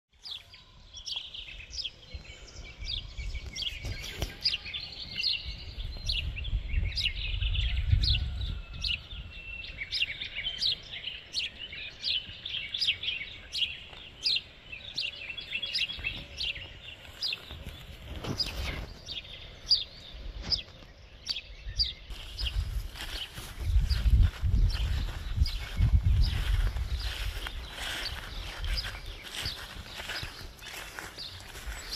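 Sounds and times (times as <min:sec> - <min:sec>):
songbirds chirping: 0:00.1 - 0:31.9.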